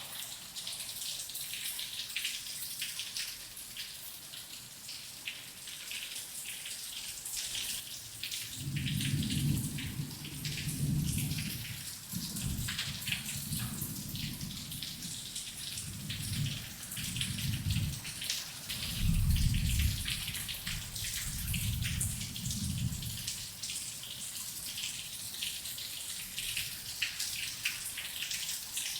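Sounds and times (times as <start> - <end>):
heavy rain falling: 7.6 - 28.9
thunder rumbling: 8.6 - 15.2, 15.9 - 18.0, 18.7 - 23.3.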